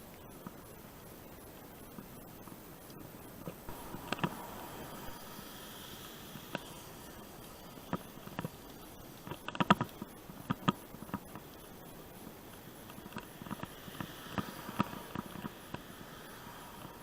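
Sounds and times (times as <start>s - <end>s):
faint steady hiss: 0.0s - 17.0s
bicycle rattling over rough ground: 6.2s - 17.0s.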